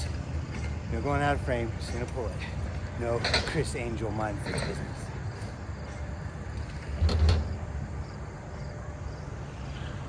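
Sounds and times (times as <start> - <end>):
bike rolling on concrete: 0.0 - 10.0.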